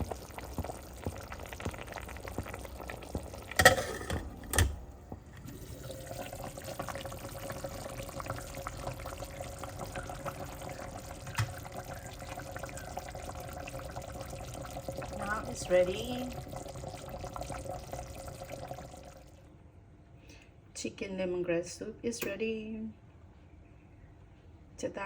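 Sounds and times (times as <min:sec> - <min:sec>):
soup bubbling in a pot: 0:00.0 - 0:19.4.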